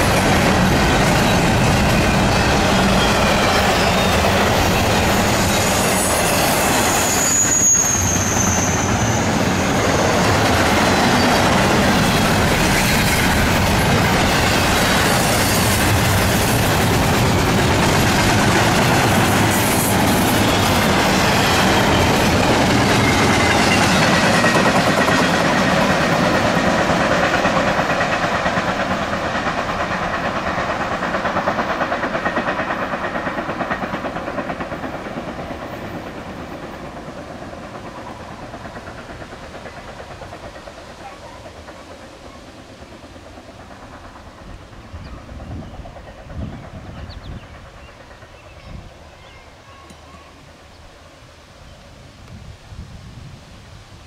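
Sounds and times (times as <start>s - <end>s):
train wheels clattering over rails: 0.0s - 50.1s
high squeal: 1.1s - 13.4s.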